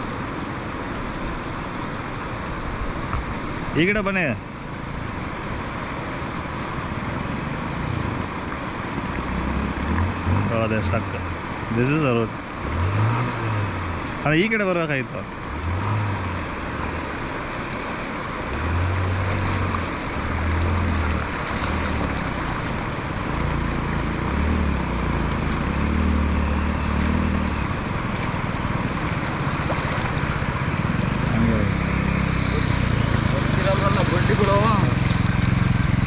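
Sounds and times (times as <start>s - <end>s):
rushing water: 0.0s - 36.0s
motorcycle engines revving: 9.2s - 36.0s.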